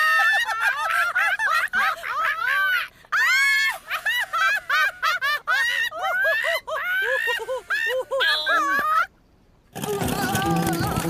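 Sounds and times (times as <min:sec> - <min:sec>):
cartoon voices squawking and cackling: 0:01.7 - 0:09.2.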